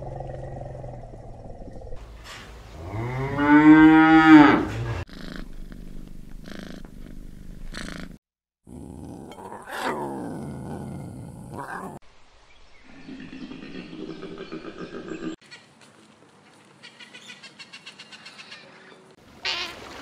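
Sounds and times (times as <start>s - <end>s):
cow mooing: 2.8s - 5.4s.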